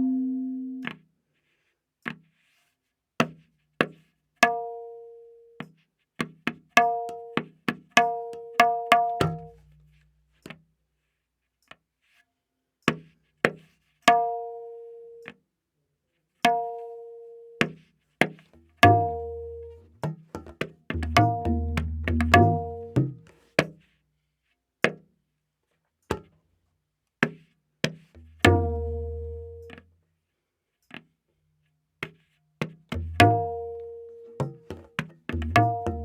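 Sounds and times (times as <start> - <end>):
tabla strokes: 5.6 - 10.6, 17.6 - 24.0, 26.1 - 26.4, 27.2 - 29.9, 32.0 - 36.0.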